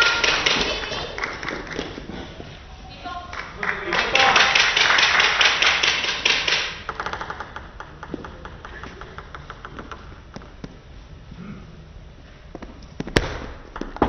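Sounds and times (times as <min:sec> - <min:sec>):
spectators clapping: 0:00.0 - 0:02.3, 0:03.0 - 0:08.2.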